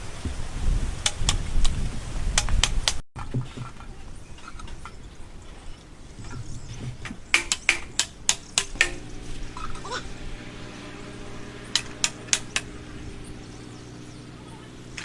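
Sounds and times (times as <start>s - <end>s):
hard objects knocking and clinking: 6.3s - 9.2s.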